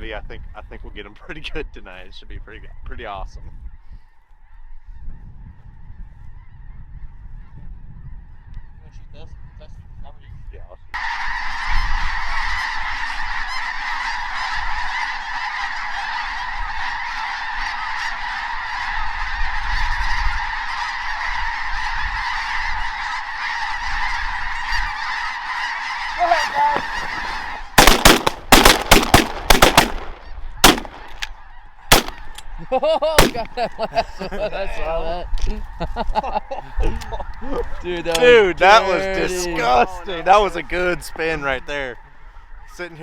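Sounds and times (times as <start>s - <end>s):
shotgun blasts: 26.7s - 31.3s, 31.9s - 32.4s, 33.2s - 33.5s.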